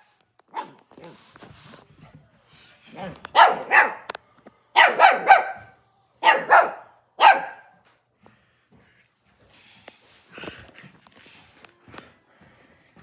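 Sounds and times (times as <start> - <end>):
dog barking: 0.5 - 1.2, 2.9 - 4.1, 4.8 - 7.8.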